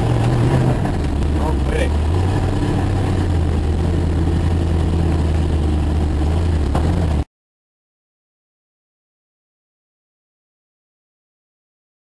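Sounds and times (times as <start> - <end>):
car engine running: 0.0 - 7.3.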